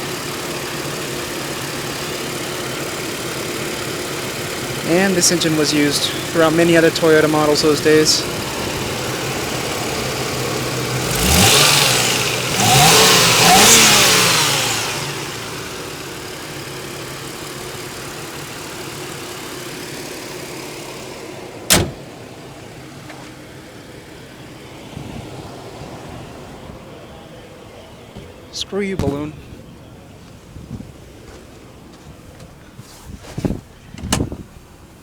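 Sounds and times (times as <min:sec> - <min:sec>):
car engine idling and revving: 0:00.0 - 0:35.0
door slam: 0:21.7 - 0:22.0.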